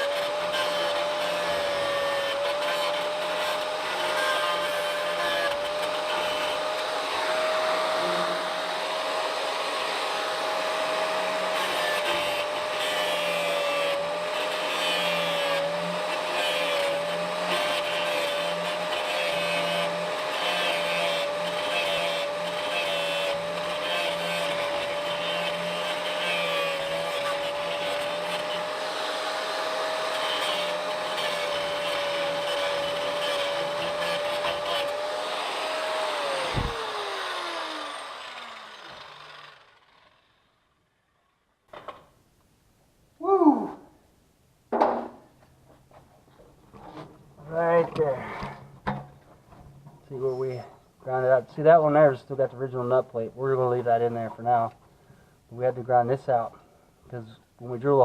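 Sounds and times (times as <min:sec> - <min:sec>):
angle grinder grinding metal: 0:00.0 - 0:40.4.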